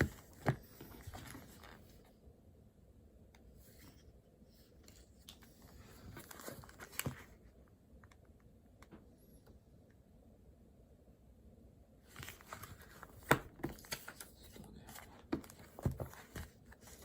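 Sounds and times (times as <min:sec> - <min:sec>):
rustling: 0:03.5 - 0:07.5.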